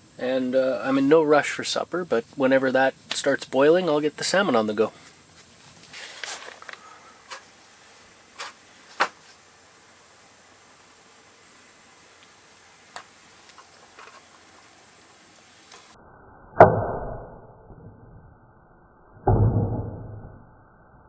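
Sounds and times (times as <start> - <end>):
faint ticks: 11.5 - 16.0.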